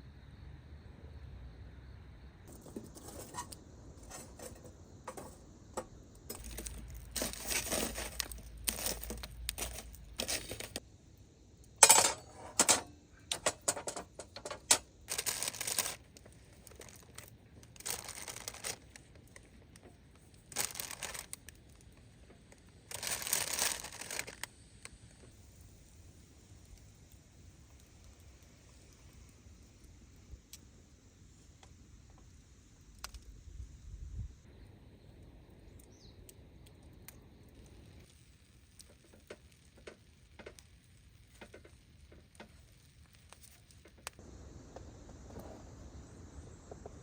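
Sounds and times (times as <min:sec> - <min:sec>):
crickets chirping: 0:00.0 - 0:47.0
plastic packaging crinkling and tearing: 0:06.3 - 0:10.8, 0:14.4 - 0:19.5, 0:20.4 - 0:21.9, 0:22.9 - 0:24.5.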